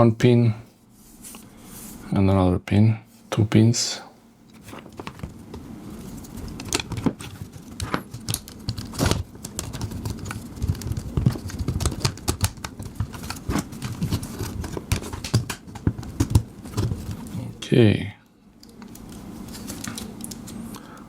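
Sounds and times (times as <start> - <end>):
hard drive clicks and rattles: 4.5 - 17.4.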